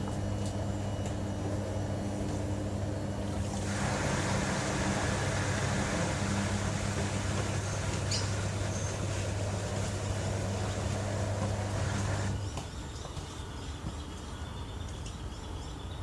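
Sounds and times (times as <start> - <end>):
washing machine motor hum: 0.0 - 13.2
water rushing and churning: 3.3 - 12.3.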